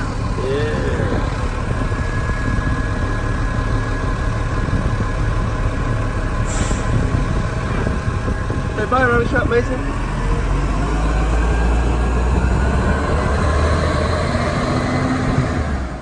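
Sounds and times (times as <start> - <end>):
diesel engine idling: 0.0 - 16.0
brief hiss: 6.5 - 7.0.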